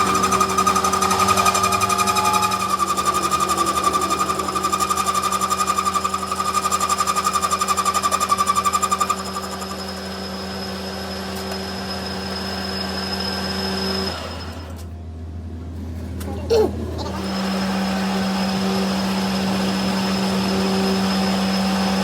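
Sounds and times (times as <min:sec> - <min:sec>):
rhythmic mechanical hammering: 0:00.0 - 0:10.8
steady machine hum: 0:00.0 - 0:22.0.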